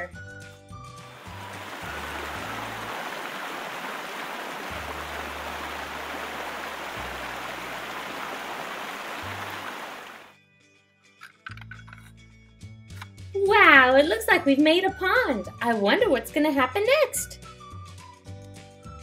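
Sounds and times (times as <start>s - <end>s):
running water rushing: 1.0s - 10.3s.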